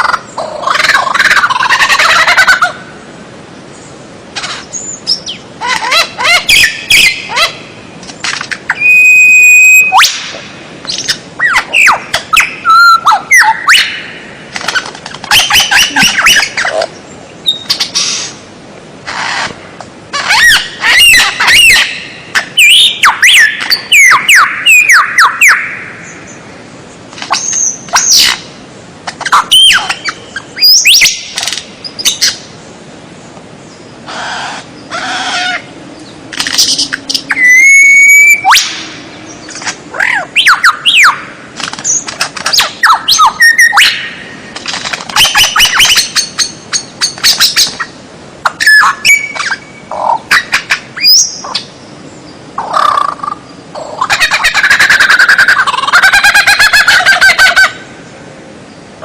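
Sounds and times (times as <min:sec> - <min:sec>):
songbird whistles and trills: 0:04.7 - 0:07.6, 0:08.2 - 0:16.8, 0:17.4 - 0:18.4, 0:20.2 - 0:26.3, 0:29.1 - 0:32.4, 0:36.4 - 0:41.2, 0:41.8 - 0:44.2, 0:45.1 - 0:47.9, 0:48.5 - 0:51.7.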